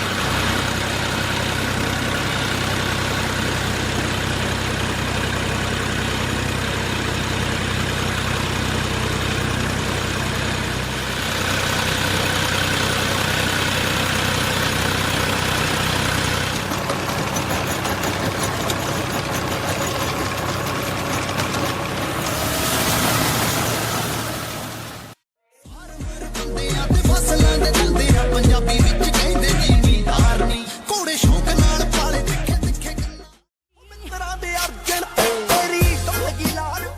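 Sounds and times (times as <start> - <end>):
engine running steadily: 0.0 - 25.2.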